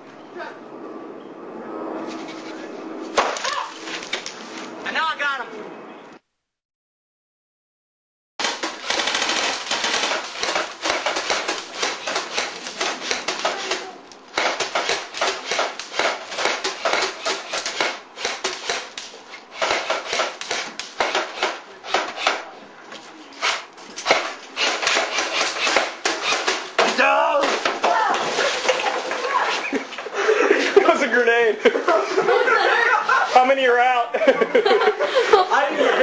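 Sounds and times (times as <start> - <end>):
airsoft guns firing: 8.4 - 22.4, 24.0 - 27.6.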